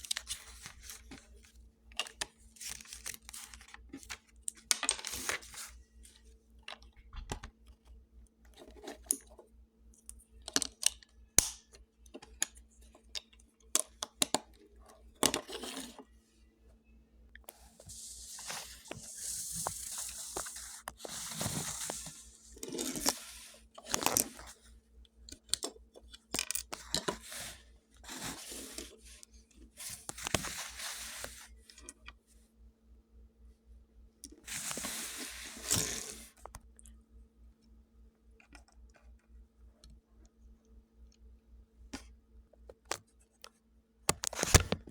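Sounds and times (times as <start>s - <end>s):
faint steady hum: 0.0s - 44.9s
plastic rustling and crinkling: 17.7s - 24.4s.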